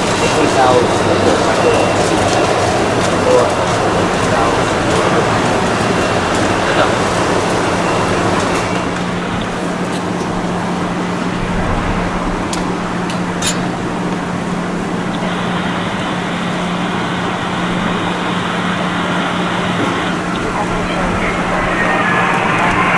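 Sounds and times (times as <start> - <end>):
traffic hum: 0.0 - 22.9.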